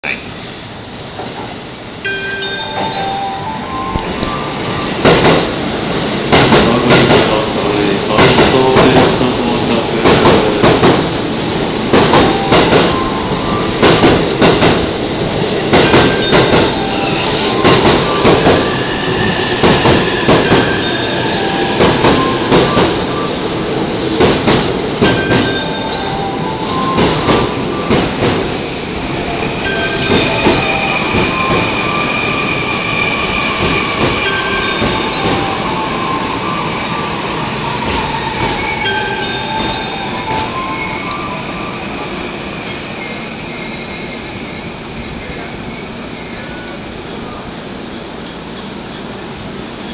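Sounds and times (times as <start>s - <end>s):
flange squeal: 16.9s - 21.8s, 28.5s - 46.8s.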